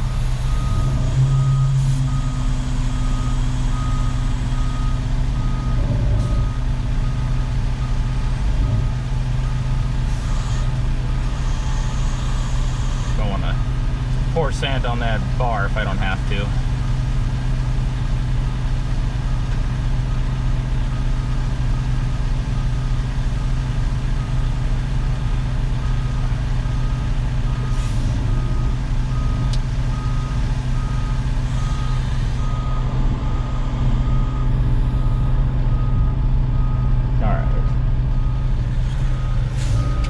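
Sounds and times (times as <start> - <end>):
reversing alarm beeping: 0.0 - 16.6, 25.8 - 40.0
diesel engine running: 0.0 - 40.0.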